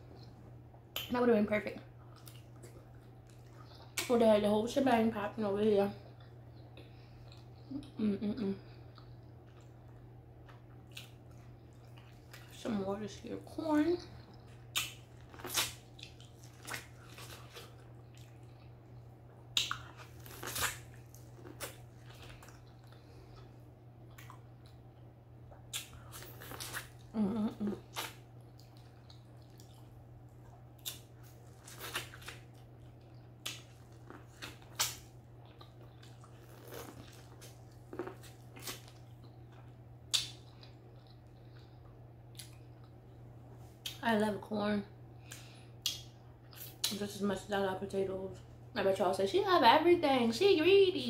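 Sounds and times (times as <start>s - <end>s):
biting and chewing corn: 19.6s - 23.5s.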